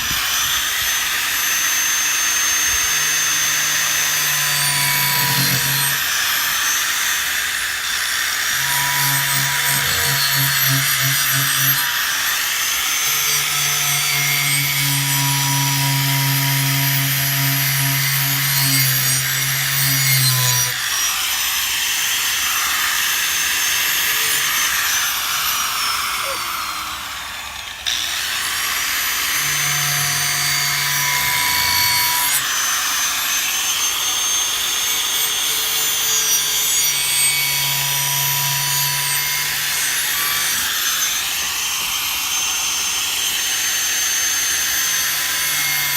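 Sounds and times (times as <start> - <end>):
wire wheel grinding metal: 8.6 - 11.9.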